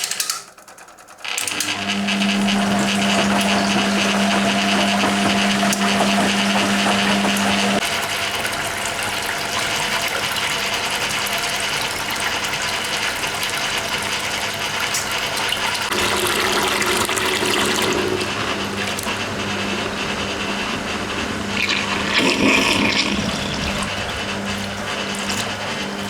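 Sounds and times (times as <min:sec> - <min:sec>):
washing machine water draining: 0:00.0 - 0:26.0
drain pump running: 0:01.0 - 0:26.0.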